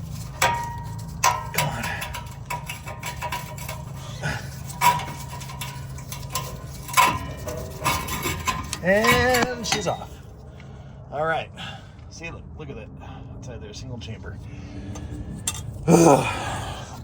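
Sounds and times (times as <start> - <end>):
metal pipe clanking: 0.0 - 10.2, 14.9 - 15.9.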